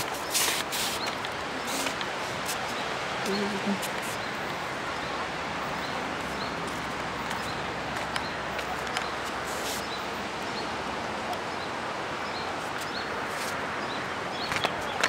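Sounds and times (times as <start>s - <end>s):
footsteps on a path: 0.0s - 4.4s, 6.1s - 10.0s
wind: 0.0s - 15.0s.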